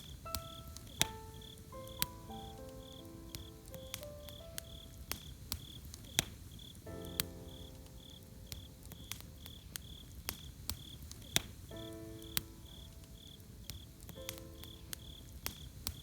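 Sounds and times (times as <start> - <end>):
soft sustained music notes: 0.0 - 5.2
campfire crackling and popping: 0.0 - 16.0
cricket chirping: 0.0 - 16.0.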